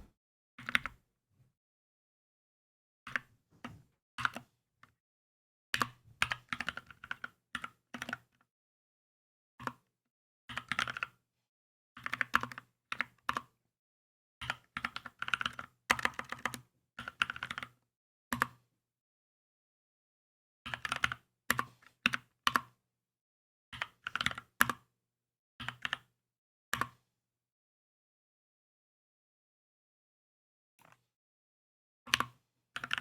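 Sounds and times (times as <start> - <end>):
mechanical keyboard typing: 10.6 - 11.0.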